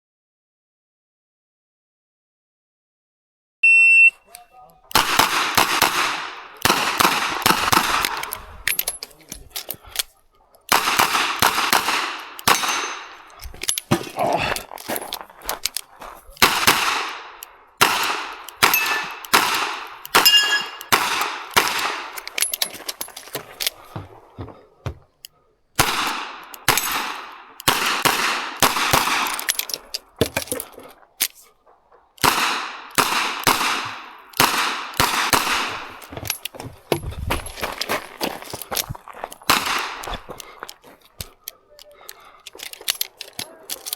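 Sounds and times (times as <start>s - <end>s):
steel target ringing: 18.6s - 19.2s, 20.2s - 20.9s.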